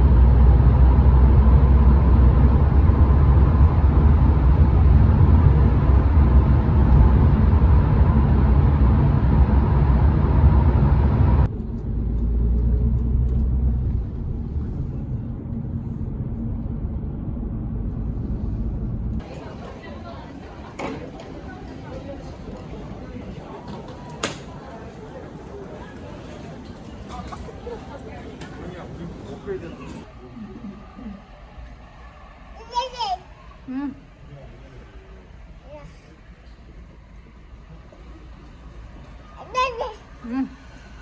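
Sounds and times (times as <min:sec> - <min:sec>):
dull rumble: 0:00.0 - 0:19.5
moving vehicle rumble: 0:00.0 - 0:41.0.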